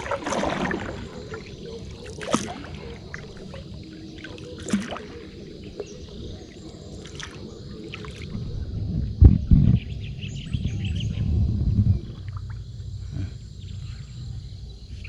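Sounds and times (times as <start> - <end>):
water splashing: 0.0 - 8.4.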